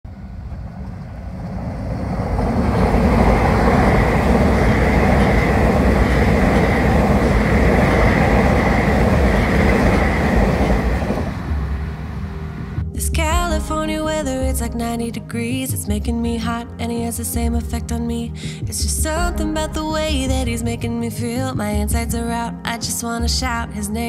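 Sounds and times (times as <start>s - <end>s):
train passing: 0.1s - 13.2s.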